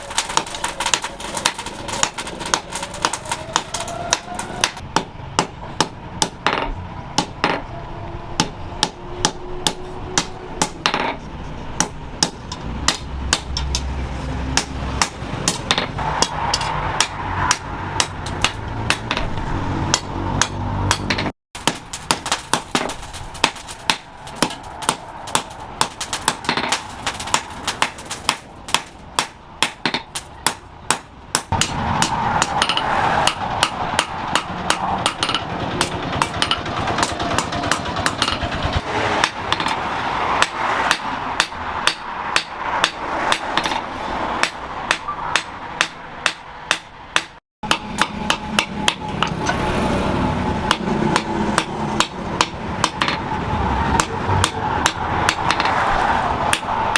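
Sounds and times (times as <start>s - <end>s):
hammer striking steel on anvil: 19.9s - 38.4s, 40.4s - 43.8s, 44.4s - 49.6s, 50.6s - 53.3s.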